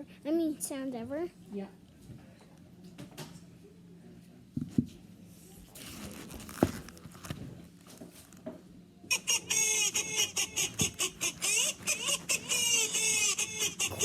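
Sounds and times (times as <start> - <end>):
rustling and crinkling handling noise: 5.4 - 8.7.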